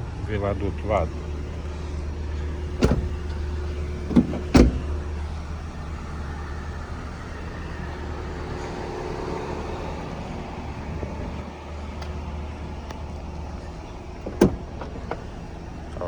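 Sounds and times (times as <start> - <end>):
steady low hum: 0.0 - 16.0
car door knocks and shutting: 0.7 - 9.5, 13.6 - 15.4.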